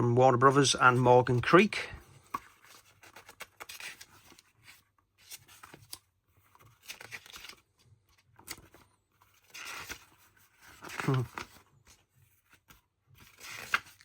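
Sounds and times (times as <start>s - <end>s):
paper pages rustling: 0.9s - 14.0s.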